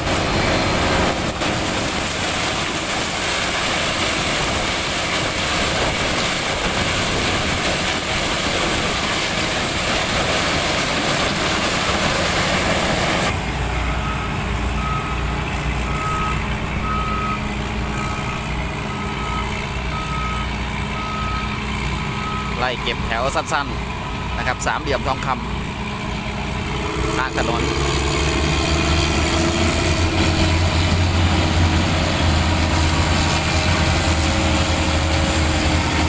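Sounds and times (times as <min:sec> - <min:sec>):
diesel engine running: 0:00.0 - 0:36.0
reversing alarm beeping: 0:13.8 - 0:21.6, 0:22.2 - 0:23.6.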